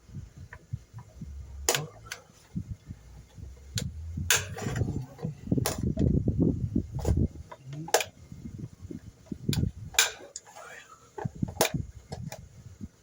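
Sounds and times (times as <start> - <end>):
handling noise: 0.4 - 12.4
sharp metallic clicks and clunks: 0.5 - 6.2, 9.2 - 10.6.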